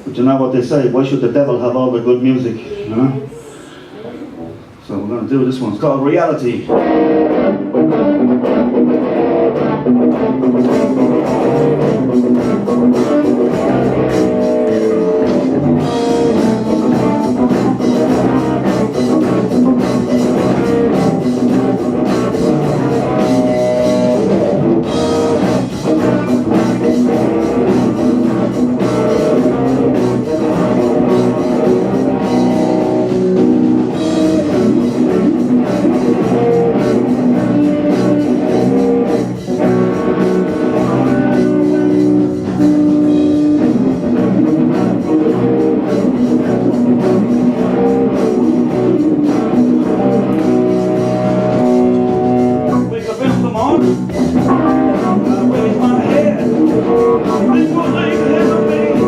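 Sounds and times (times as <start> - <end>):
electric guitar: 6.5 - 59.0
drum kit: 6.7 - 59.0.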